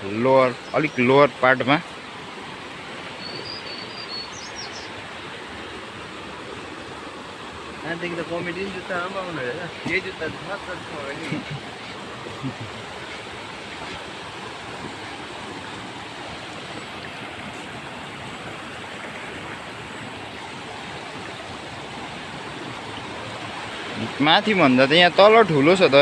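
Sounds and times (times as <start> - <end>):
stream flowing over rocks: 0.0 - 26.0.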